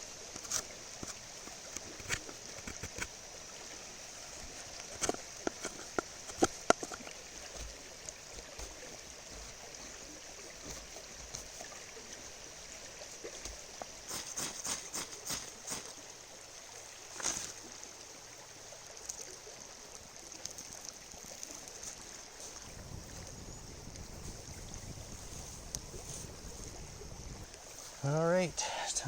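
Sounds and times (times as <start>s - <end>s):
knife carving wood: 5.0s - 11.5s, 13.4s - 16.0s.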